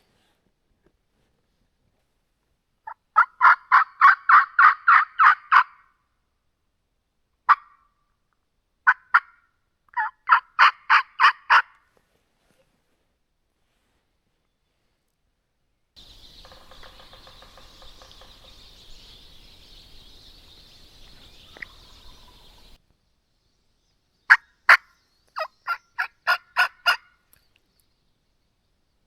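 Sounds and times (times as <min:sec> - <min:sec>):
distant turkey gobble: 0:02.8 - 0:05.9, 0:10.0 - 0:11.8, 0:16.0 - 0:19.2, 0:24.3 - 0:27.2
loud turkey yelps: 0:02.8 - 0:05.9, 0:07.5 - 0:07.9, 0:08.8 - 0:09.4, 0:10.0 - 0:11.8, 0:24.3 - 0:27.2.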